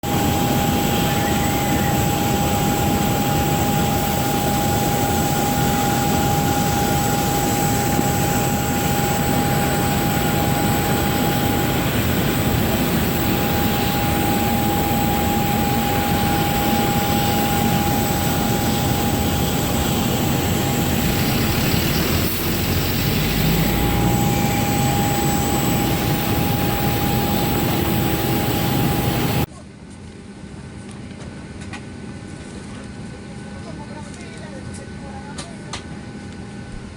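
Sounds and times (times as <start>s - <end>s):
jet aircraft roar with whine: 0.0s - 29.5s.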